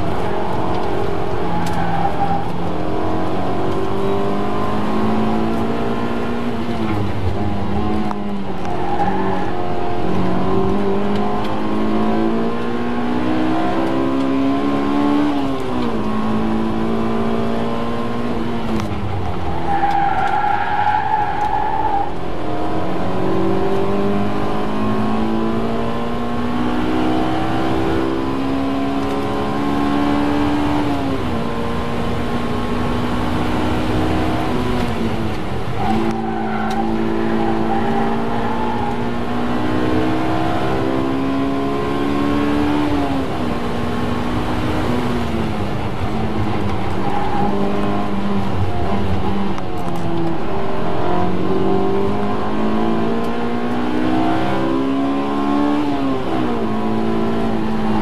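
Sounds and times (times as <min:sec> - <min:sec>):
car engine revving from inside cabin: 0:02.8 - 0:07.0, 0:09.5 - 0:18.8, 0:22.5 - 0:35.2, 0:36.8 - 0:45.4, 0:47.5 - 0:58.0.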